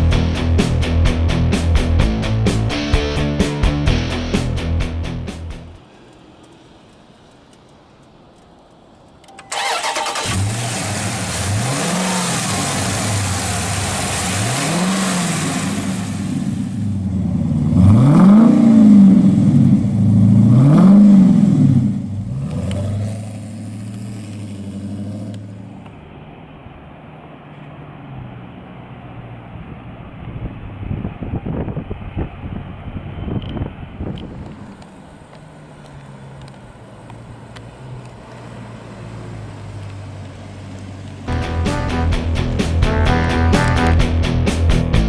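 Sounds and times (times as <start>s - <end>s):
car engine cranking and firing: 9.3s - 25.7s
engine revving: 9.5s - 25.8s.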